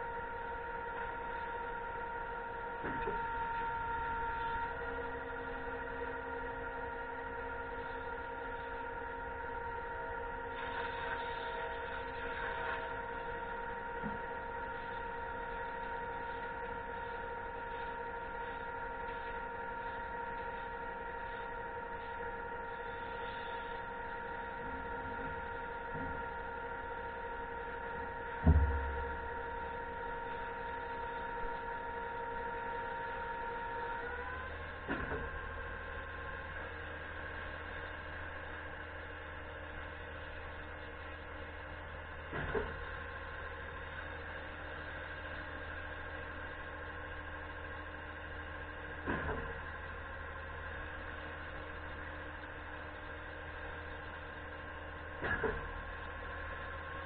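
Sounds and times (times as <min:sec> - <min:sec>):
pump truck engine humming: 0:00.0 - 0:57.0
loud thump: 0:28.4 - 0:29.1.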